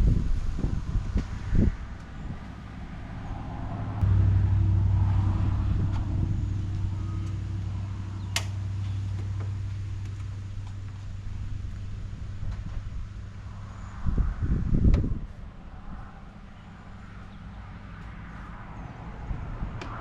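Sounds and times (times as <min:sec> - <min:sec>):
car engine starting and idling: 0:01.9 - 0:14.0.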